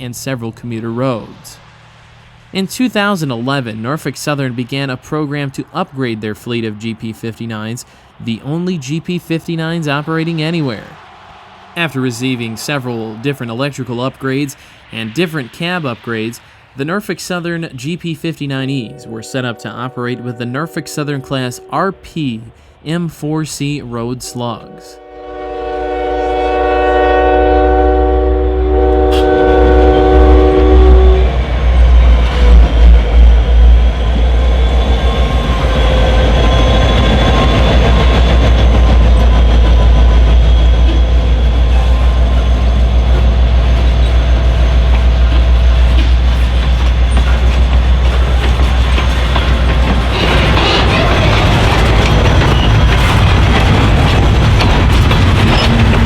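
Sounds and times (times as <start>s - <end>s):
freight cars rolling: 0.0s - 22.6s, 28.9s - 56.0s
locomotive air horn blast: 18.8s - 22.0s, 24.3s - 31.4s, 40.6s - 46.3s, 50.0s - 51.4s
locomotive engine rumble: 23.6s - 56.0s.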